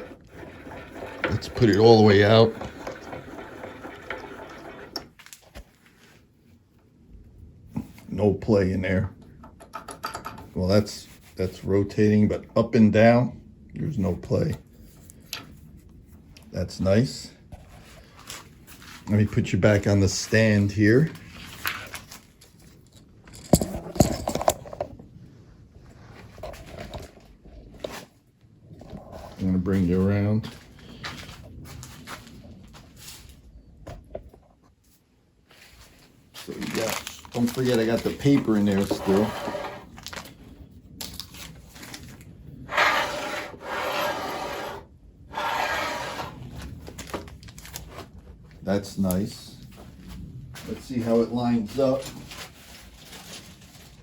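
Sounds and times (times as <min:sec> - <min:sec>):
wood scraping strokes: 0:00.0 - 0:06.3, 0:35.5 - 0:40.3, 0:42.6 - 0:47.0
rustling: 0:17.6 - 0:19.3, 0:34.6 - 0:54.0
clicks and rattles: 0:21.7 - 0:25.0.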